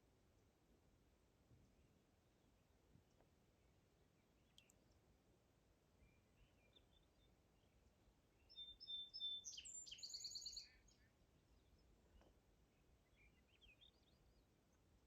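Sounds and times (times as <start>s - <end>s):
songbird singing: 3.1s - 5.1s, 5.8s - 15.0s
faint bird chirps: 6.0s - 14.5s.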